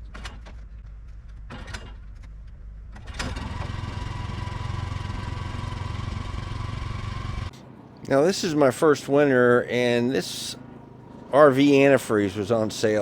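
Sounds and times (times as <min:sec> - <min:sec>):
sawmill engine running: 0:03.0 - 0:13.0.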